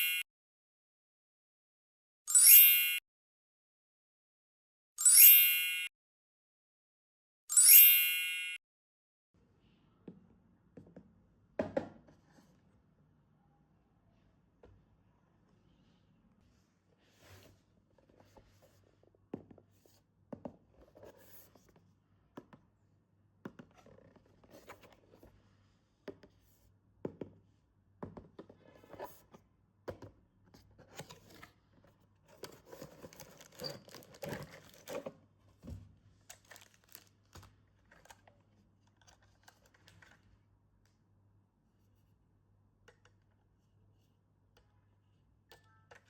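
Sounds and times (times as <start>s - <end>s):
wrapping tearing and crinkling: 32.8s - 35.0s, 36.3s - 38.1s.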